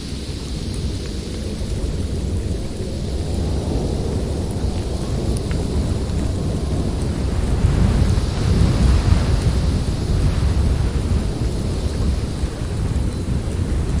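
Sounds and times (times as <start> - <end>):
blizzard wind rumbling: 0.0 - 14.0.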